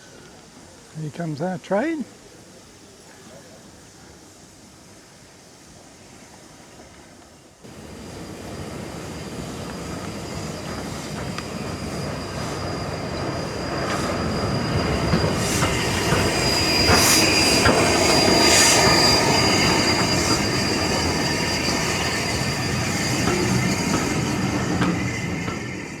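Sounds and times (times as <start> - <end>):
train pulling in: 0.0 - 26.0
wheel and brake squeal: 8.0 - 26.0.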